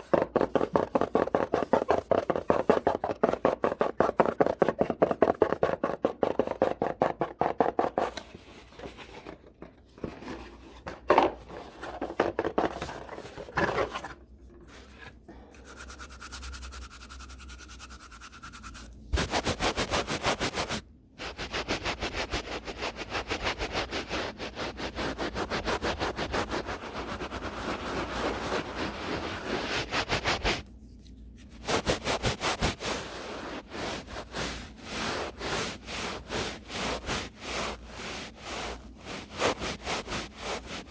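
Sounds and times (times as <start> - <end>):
brush scrubbing microphone: 15.6 - 30.6, 31.4 - 40.9.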